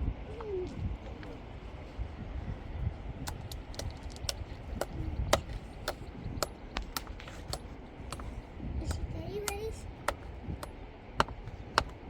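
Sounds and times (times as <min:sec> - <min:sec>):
sharp irregular clicks and taps: 0:03.2 - 0:12.0.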